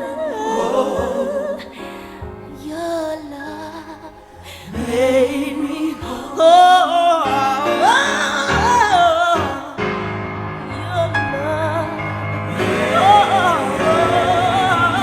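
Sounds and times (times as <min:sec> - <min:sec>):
person singing gospel: 0:00.0 - 0:15.0
held keyboard chords: 0:07.3 - 0:15.0.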